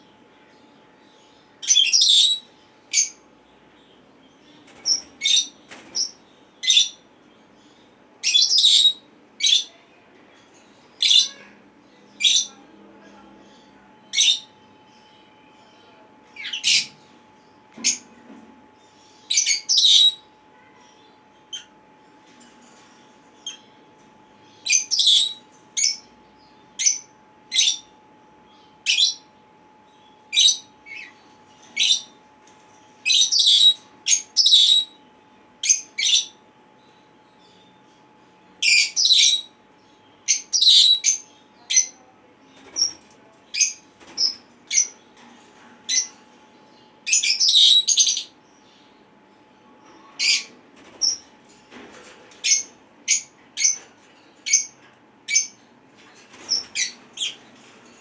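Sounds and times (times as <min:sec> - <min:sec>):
parrots calling: 0:33.0 - 0:35.0, 0:47.1 - 0:48.4.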